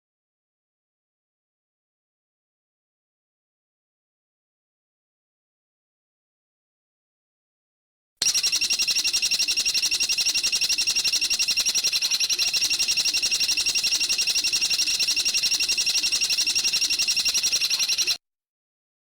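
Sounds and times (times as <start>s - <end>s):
bird trilling: 8.2s - 18.2s.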